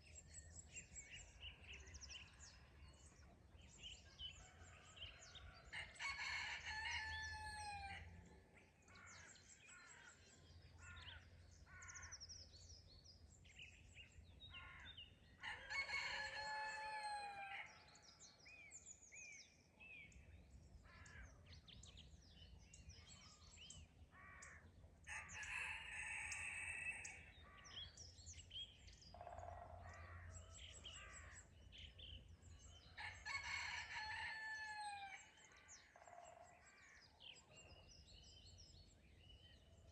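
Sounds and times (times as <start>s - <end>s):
songbirds chirping: 0.0s - 39.9s
rooster crowing: 15.4s - 17.6s, 25.1s - 27.2s.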